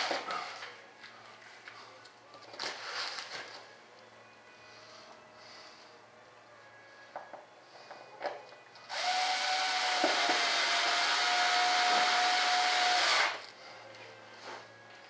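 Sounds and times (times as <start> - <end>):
handheld electric motor tool: 8.9 - 13.4.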